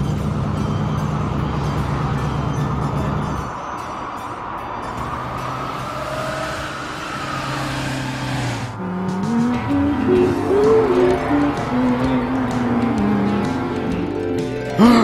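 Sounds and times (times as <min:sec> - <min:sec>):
vehicle engine running: 0:00.0 - 0:03.6, 0:07.0 - 0:14.8
tune of stepped notes: 0:08.7 - 0:14.8.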